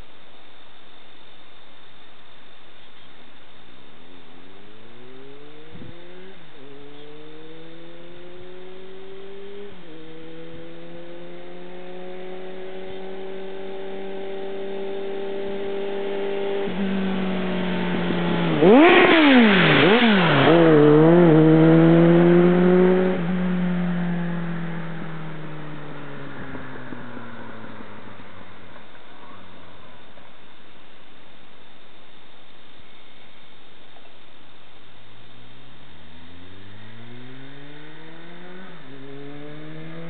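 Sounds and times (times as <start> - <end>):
motorcycle accelerating through gears: 4.1 - 30.1, 35.7 - 40.0.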